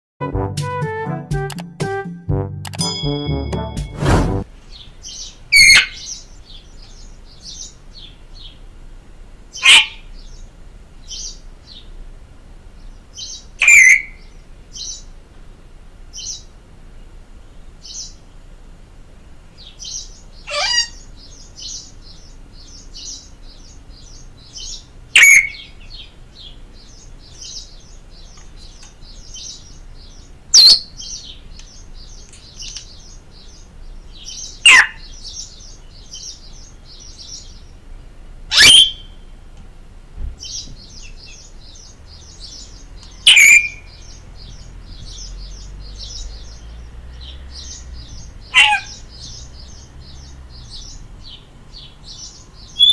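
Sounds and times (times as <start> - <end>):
birds chattering: 4.6 - 18.4, 19.3 - 52.9
loud downward-sweeping bird call: 5.1 - 6.2, 13.3 - 14.9, 19.8 - 21.8, 24.6 - 25.8, 38.5 - 39.3, 42.4 - 51.4, 52.6 - 52.9.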